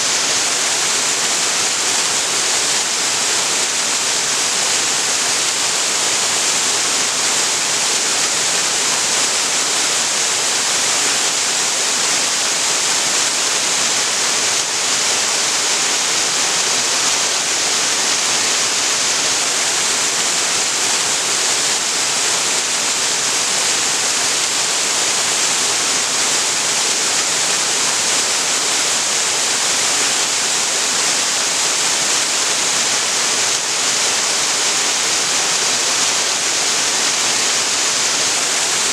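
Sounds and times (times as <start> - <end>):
waterfall pouring: 0.1 - 38.9.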